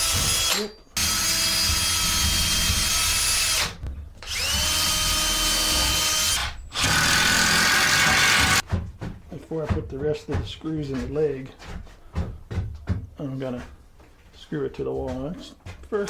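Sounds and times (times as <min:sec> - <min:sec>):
power drill driving screws: 0:00.0 - 0:08.6.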